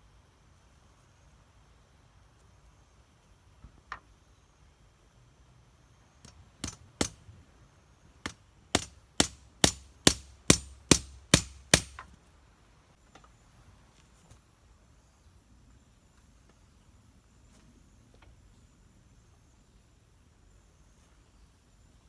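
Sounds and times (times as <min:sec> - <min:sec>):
sharp strikes on wood: 0:06.2 - 0:07.2, 0:08.3 - 0:12.1.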